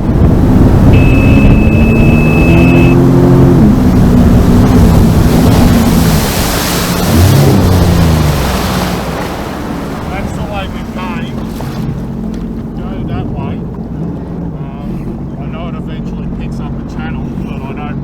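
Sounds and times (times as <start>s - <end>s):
jet ski engine running: 0.0s - 18.0s
rushing water: 0.0s - 18.0s
rushing wind: 0.0s - 18.0s.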